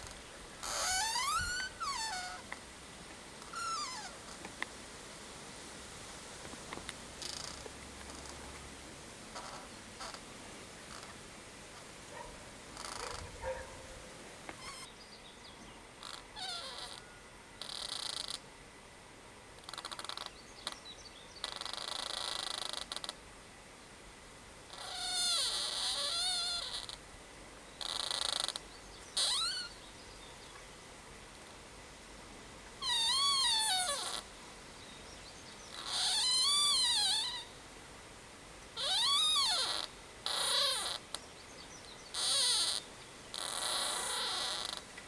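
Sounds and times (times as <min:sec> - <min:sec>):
tree creaking and squealing: 0:00.0 - 0:02.6, 0:03.4 - 0:04.6, 0:06.7 - 0:08.6, 0:09.3 - 0:11.2, 0:11.8 - 0:13.8, 0:14.5 - 0:15.0, 0:16.0 - 0:18.5, 0:19.6 - 0:20.8, 0:21.4 - 0:23.2, 0:24.7 - 0:27.1, 0:27.8 - 0:29.9, 0:32.8 - 0:34.4, 0:35.6 - 0:37.7, 0:38.7 - 0:45.0.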